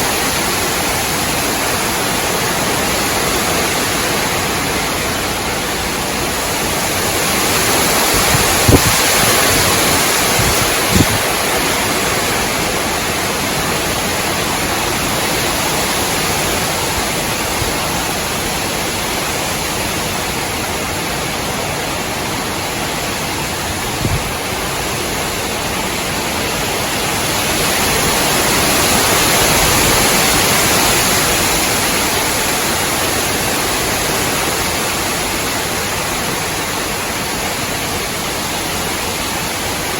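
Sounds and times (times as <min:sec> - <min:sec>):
gusty wind through trees: 0:00.0 - 0:39.9.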